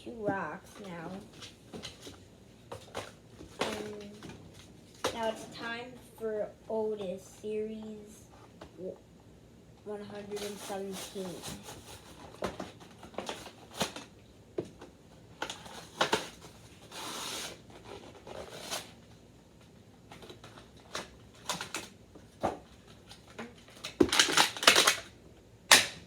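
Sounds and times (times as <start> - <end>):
packaging rustle: 15.4 - 19.0, 20.1 - 25.1
packaging crinkling and clicking: 20.1 - 25.1, 25.7 - 26.0.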